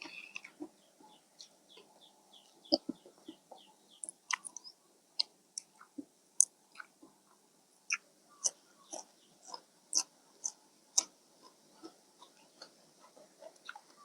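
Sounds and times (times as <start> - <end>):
chewing and wet mouth smacks: 0.0 - 0.7, 4.0 - 7.0, 7.9 - 11.1, 13.4 - 14.0
bird chirping: 0.0 - 4.9, 7.9 - 11.1.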